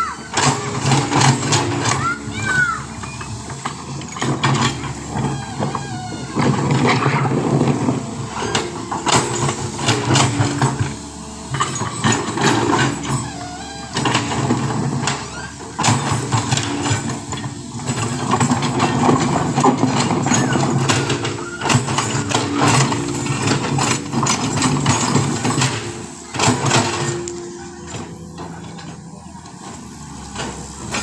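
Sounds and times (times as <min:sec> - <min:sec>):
heavy machinery diesel engine: 0:00.0 - 0:31.0.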